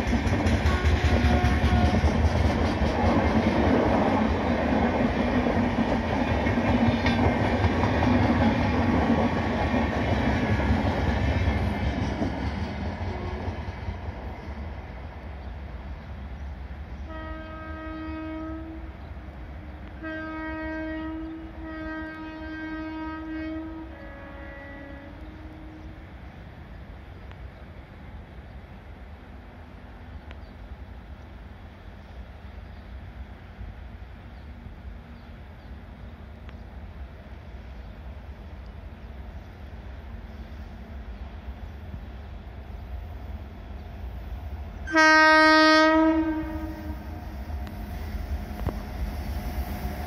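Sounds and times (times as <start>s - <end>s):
train wheels clacking on rails: 0.0s - 14.6s
distant locomotive horn: 0.5s - 2.8s, 13.0s - 13.6s, 17.0s - 26.4s, 44.8s - 50.0s.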